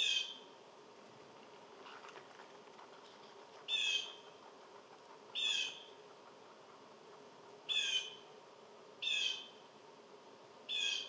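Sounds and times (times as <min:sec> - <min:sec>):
bird calling: 0:00.0 - 0:00.5, 0:02.9 - 0:08.3, 0:09.0 - 0:09.6, 0:10.7 - 0:11.0.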